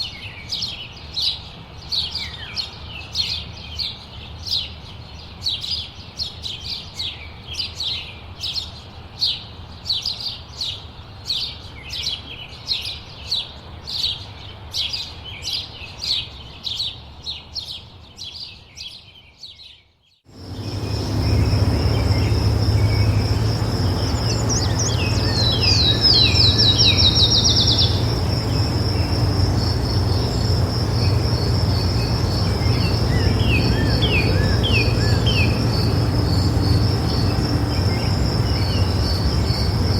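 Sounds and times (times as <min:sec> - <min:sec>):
bird chirping: 0:11.3 - 0:39.9
insect trill: 0:20.3 - 0:39.9
low rumble: 0:20.4 - 0:39.9.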